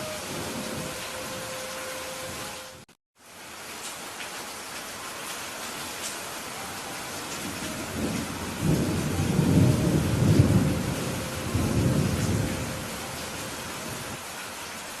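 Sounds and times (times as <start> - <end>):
steady rain: 0.0 - 15.0
thunder rumbling: 7.3 - 14.2.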